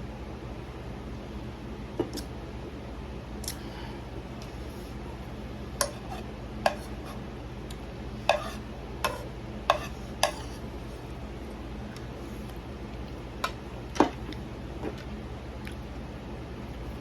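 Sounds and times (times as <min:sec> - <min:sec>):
utensil clicking against dish: 0:08.3 - 0:10.4.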